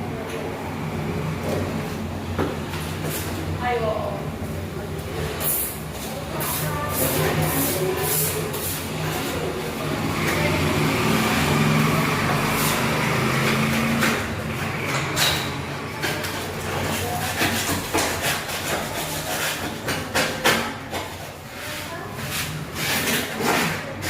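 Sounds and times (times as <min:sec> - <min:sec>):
engine hum: 0:09.5 - 0:17.1.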